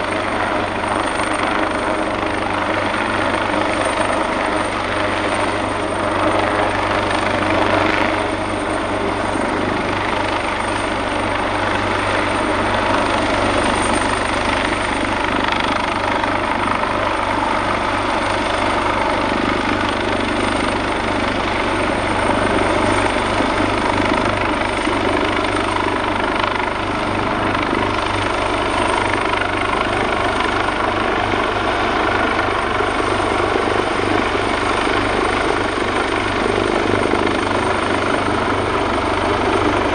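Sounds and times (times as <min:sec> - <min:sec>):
helicopter running: 0:00.0 - 0:39.9.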